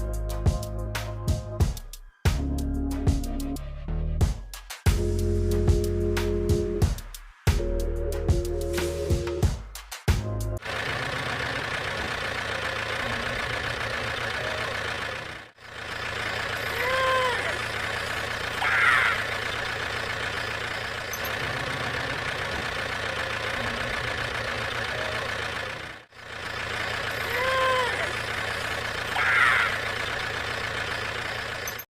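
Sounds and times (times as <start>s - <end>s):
small engine running: 10.6s - 31.9s.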